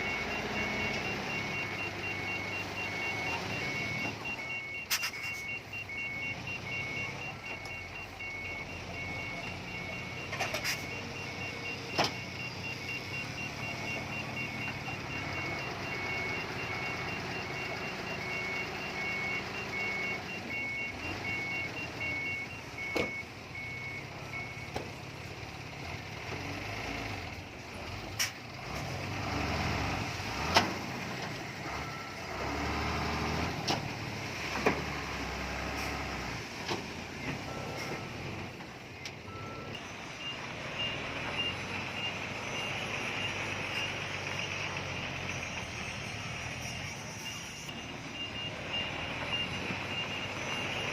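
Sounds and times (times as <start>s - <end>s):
reversing alarm beeping: 0.0s - 24.9s, 31.6s - 33.6s, 37.2s - 50.9s.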